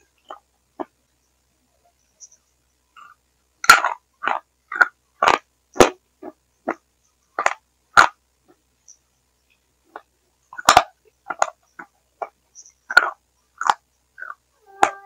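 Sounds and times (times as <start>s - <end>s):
distorted chewing mouth sounds: 3.0s - 6.8s, 9.9s - 14.5s.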